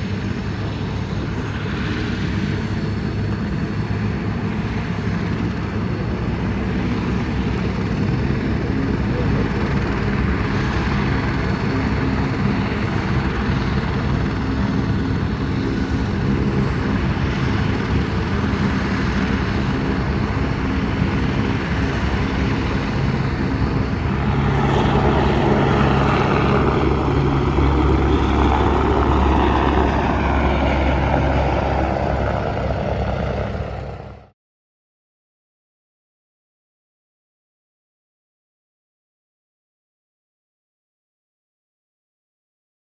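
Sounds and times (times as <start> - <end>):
engine humming: 0.1 - 34.3.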